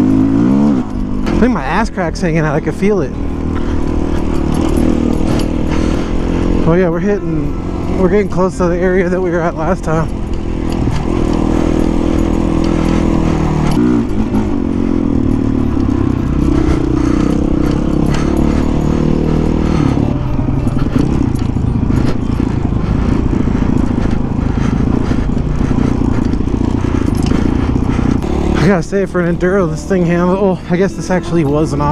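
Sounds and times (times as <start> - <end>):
bike rattling over rough ground: 0.0 - 31.9
dirt bike engine under load: 0.0 - 31.9.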